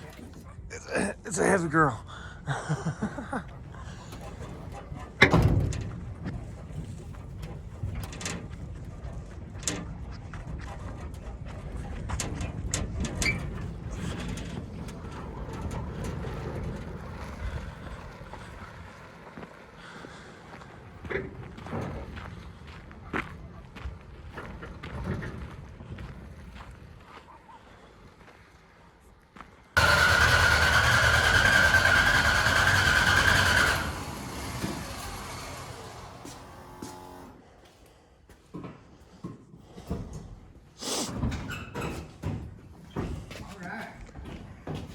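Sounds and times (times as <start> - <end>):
tyres rumbling on ground: 0.0 - 27.0, 29.8 - 37.4
starter motor cranking engine: 29.8 - 37.4.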